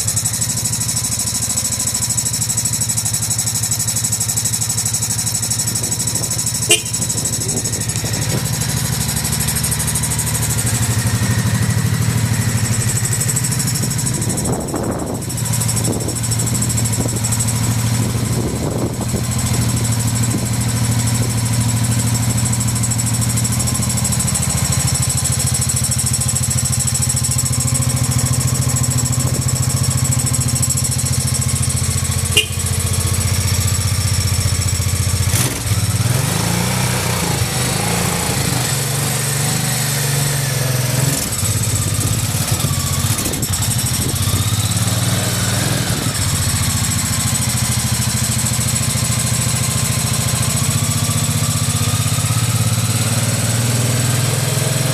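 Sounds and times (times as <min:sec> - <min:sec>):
motorcycle engine idling: 0:00.0 - 0:36.0, 0:41.3 - 0:45.2, 0:46.0 - 0:53.2
motorcycle throttle blips: 0:03.7 - 0:20.4, 0:30.7 - 0:35.8.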